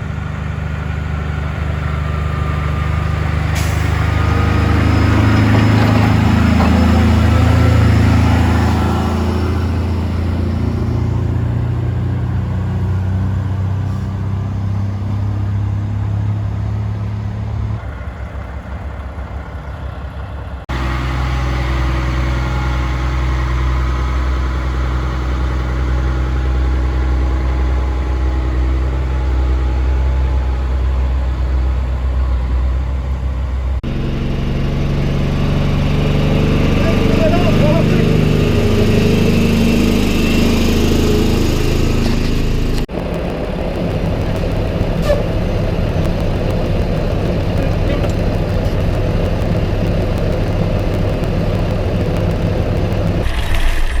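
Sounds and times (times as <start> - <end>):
diesel truck engine idling: 0.0 - 54.0
deep engine idle: 17.7 - 54.0.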